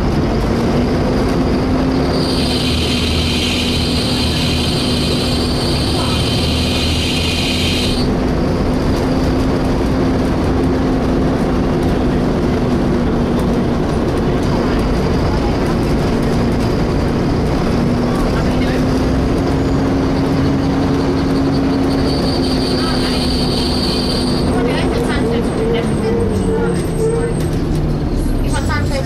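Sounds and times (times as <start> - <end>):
bus cooling fan whine: 0.0 - 22.0
bus engine low rumble: 0.0 - 29.0
loud high-pitched screech: 2.1 - 8.1, 22.0 - 24.6.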